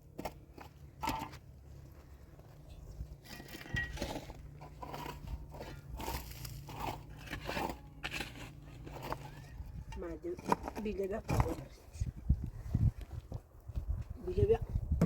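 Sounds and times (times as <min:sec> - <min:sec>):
crunching and scraping: 0:00.0 - 0:14.2.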